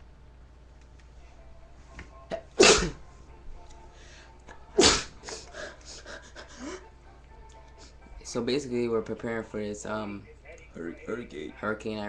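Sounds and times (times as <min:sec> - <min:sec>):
person sneezing: 0:02.3 - 0:03.0, 0:04.8 - 0:05.5.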